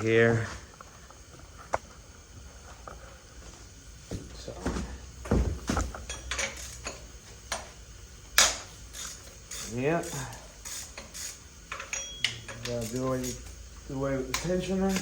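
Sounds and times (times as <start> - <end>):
metal tools clanking on engine: 6.0 - 7.0, 9.6 - 13.4.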